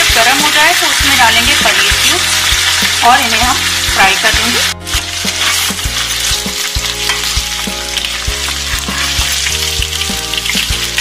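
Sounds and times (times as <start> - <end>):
cheese sizzling in hot oil: 0.0 - 11.0
metal spoon scraping pan: 4.9 - 11.0.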